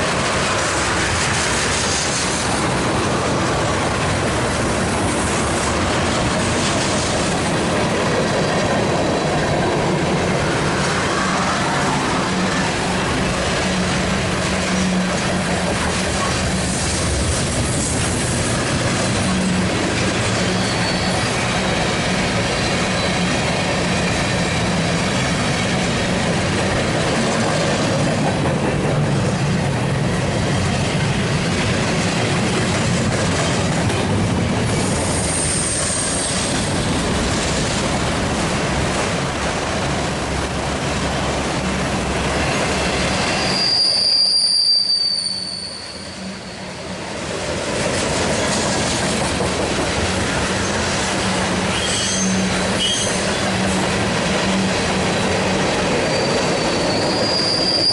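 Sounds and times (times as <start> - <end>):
freight train wheels rumbling: 0.0 - 57.9
high wheel squeals: 20.3 - 21.8, 34.8 - 36.7, 43.1 - 46.8, 51.7 - 53.4, 56.0 - 57.9.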